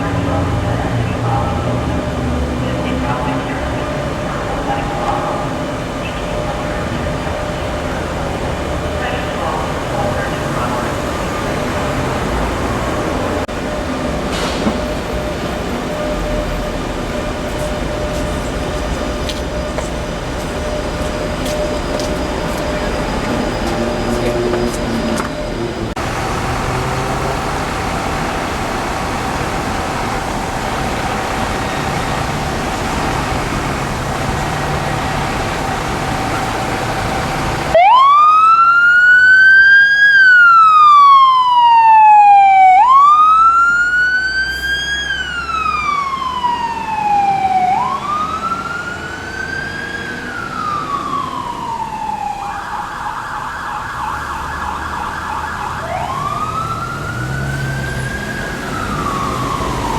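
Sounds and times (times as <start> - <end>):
fire truck siren wailing: 0.0 - 59.9
street noise: 0.0 - 59.9.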